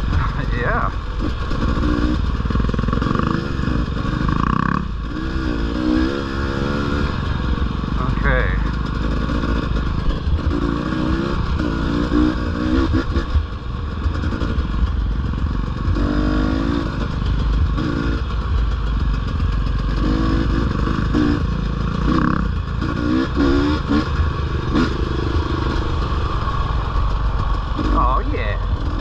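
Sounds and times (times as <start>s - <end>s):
dirt bike engine revving: 0.0s - 29.0s
wind and ride noise rumble: 0.0s - 29.0s.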